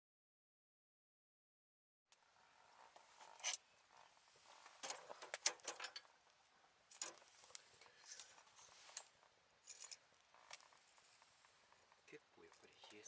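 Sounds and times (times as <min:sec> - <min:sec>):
rustling: 0:02.3 - 0:13.0
small objects clicking and clinking: 0:06.9 - 0:08.4, 0:09.6 - 0:11.2.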